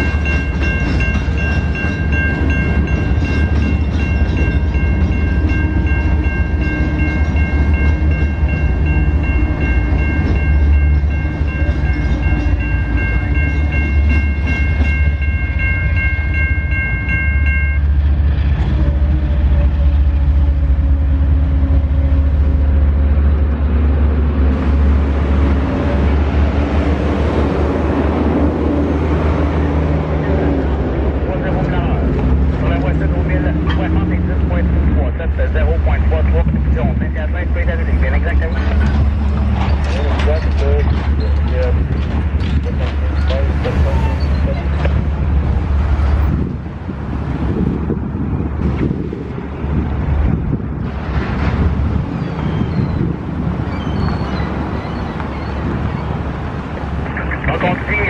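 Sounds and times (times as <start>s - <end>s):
crossing warning bell ringing: 0.0s - 22.1s, 37.4s - 46.5s
train rumble: 0.0s - 58.0s.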